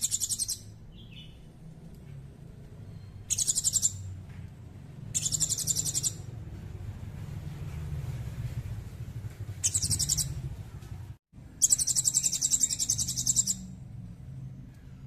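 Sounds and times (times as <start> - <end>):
songbird high-pitched trills: 0.0 - 1.4, 2.9 - 4.2, 5.1 - 6.3, 9.6 - 10.4, 11.6 - 13.8.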